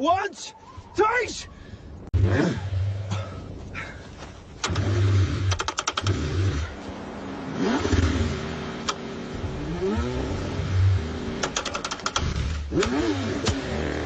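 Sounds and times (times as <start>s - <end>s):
car engine cranking: 4.6s - 6.8s, 7.6s - 14.0s
sharp clicks: 5.5s - 6.2s, 8.8s - 9.0s, 11.4s - 13.6s.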